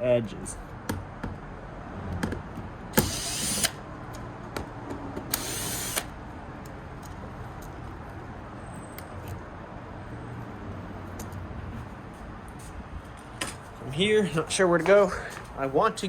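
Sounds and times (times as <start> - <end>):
power drill spinning: 3.0 - 3.8, 5.3 - 6.2
bit and screws clicking: 5.2 - 7.8.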